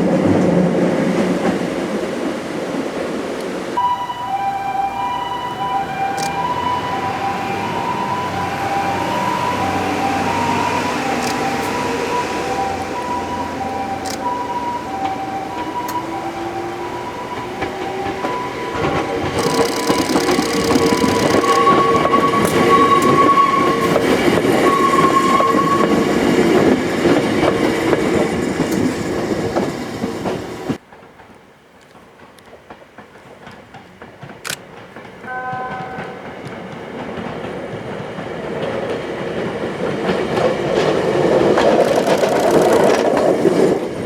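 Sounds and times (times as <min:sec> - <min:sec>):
wheels squealing: 0:03.8 - 0:30.8, 0:40.0 - 0:44.0
train wheels clattering on rails: 0:05.5 - 0:44.0
two-tone level-crossing bell: 0:35.2 - 0:36.7.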